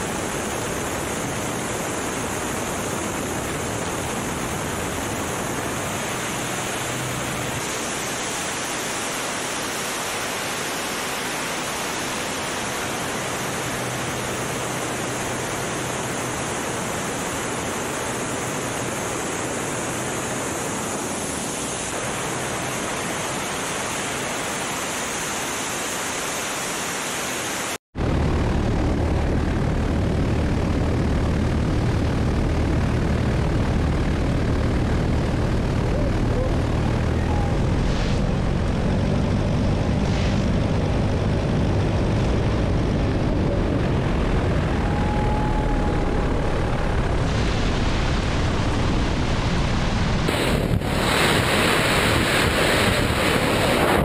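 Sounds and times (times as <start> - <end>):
propeller aircraft engine drone: 0.0 - 54.0
wind rushing over microphone: 28.0 - 54.0.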